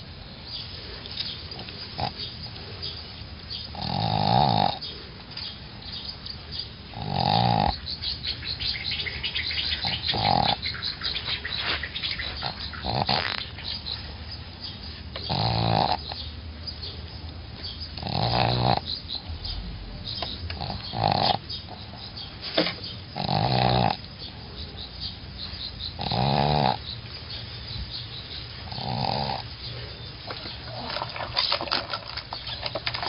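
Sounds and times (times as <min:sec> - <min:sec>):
faint clicking breaths: 0:00.0 - 0:03.9, 0:26.7 - 0:33.0
dog snoring: 0:01.6 - 0:02.3, 0:03.7 - 0:05.0, 0:06.9 - 0:07.9, 0:09.8 - 0:10.7, 0:12.2 - 0:13.4, 0:15.2 - 0:16.2, 0:18.0 - 0:18.9, 0:20.5 - 0:21.8, 0:23.2 - 0:24.1, 0:25.9 - 0:26.9, 0:28.7 - 0:29.9.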